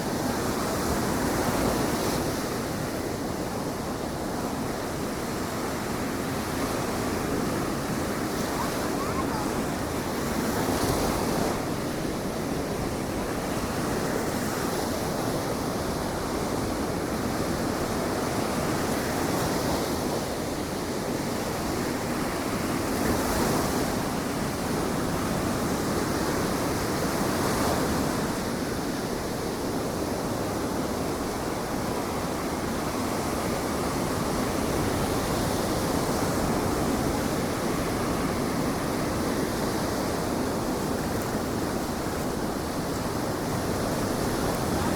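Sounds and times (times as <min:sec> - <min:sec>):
ocean surf breaking: 0:06.2 - 0:12.8, 0:33.9 - 0:44.9.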